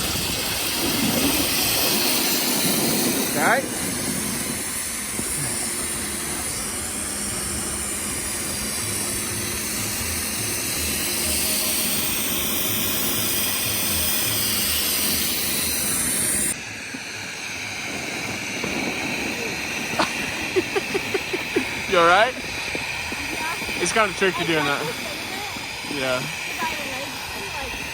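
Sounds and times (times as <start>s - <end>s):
wind on microphone: 0.0s - 10.5s, 16.3s - 27.9s
snowboard sliding on snow: 0.0s - 27.9s.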